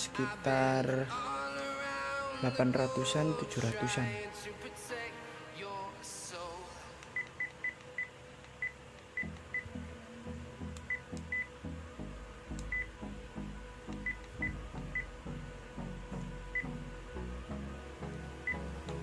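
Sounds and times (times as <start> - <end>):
music with low beat: 9.2 - 19.0
electronic key beeps: 10.9 - 11.5.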